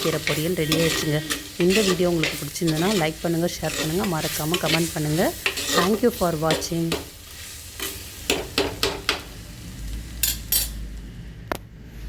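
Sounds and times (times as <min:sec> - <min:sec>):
spatula scraping a pan: 0:00.0 - 0:08.5.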